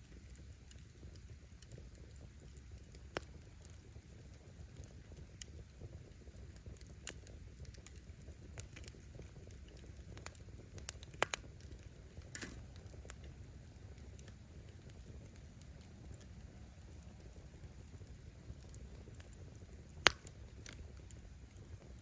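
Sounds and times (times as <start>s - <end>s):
bonfire crackling: 0.0s - 22.0s
low fire rumble: 0.0s - 22.0s
sharp fire pops: 0.3s - 22.0s.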